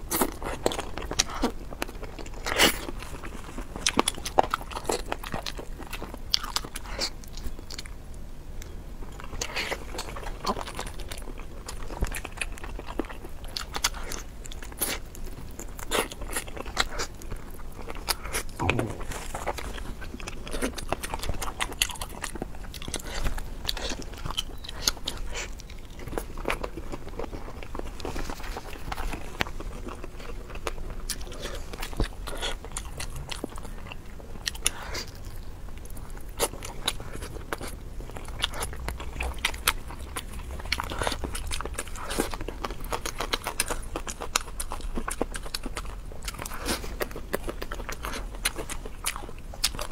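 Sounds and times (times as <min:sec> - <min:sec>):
mouth clicks and crunches: 0:08.6 - 0:49.9.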